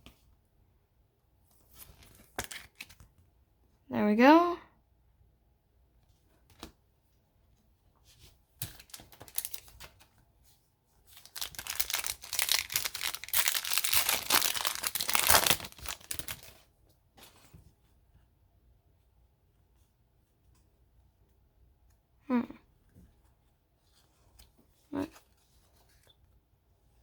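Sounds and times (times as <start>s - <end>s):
wrapper crackling and crumpling: 8.6s - 10.0s, 11.1s - 16.6s
wrapper tearing: 8.8s - 9.7s, 11.2s - 16.6s.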